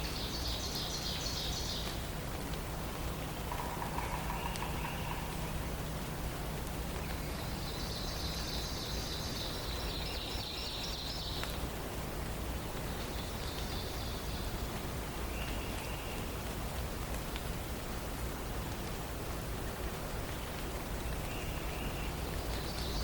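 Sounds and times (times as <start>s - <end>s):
songbirds singing: 0.0s - 2.1s, 3.0s - 11.7s, 12.5s - 16.4s, 20.2s - 23.0s
background hiss: 0.0s - 23.0s.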